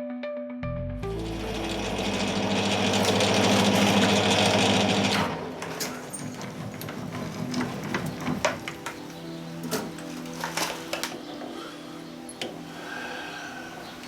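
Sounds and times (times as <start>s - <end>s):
metal lathe cutting: 1.2s - 8.6s.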